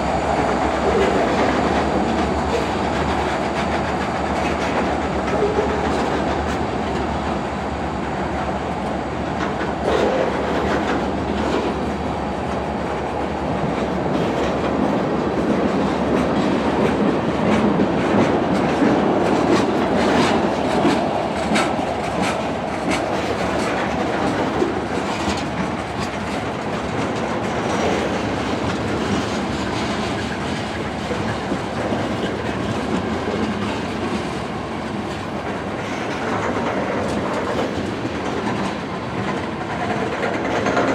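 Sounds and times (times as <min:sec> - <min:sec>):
freight train rumble: 0:00.0 - 0:40.9
train wheels clicking over rail joints: 0:08.8 - 0:40.9.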